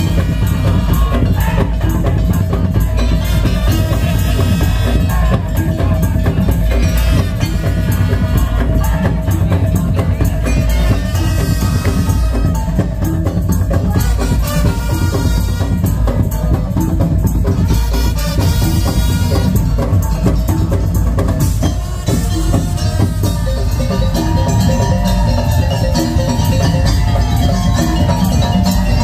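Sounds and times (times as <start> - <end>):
slit drums and drums pounding: 0.0 - 29.0
melody: 22.1 - 29.0.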